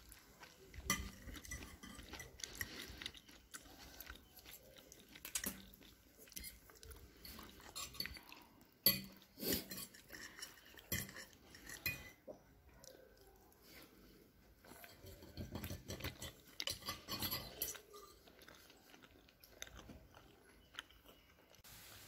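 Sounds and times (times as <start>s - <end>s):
soft chewing: 0.0s - 21.7s
fork clinking on ceramic plate: 7.2s - 12.2s, 14.8s - 18.2s.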